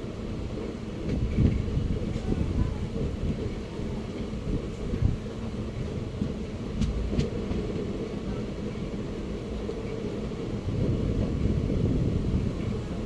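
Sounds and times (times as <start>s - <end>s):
train rumbling on track: 0.0s - 13.0s
sharp track clacks: 6.2s - 7.9s.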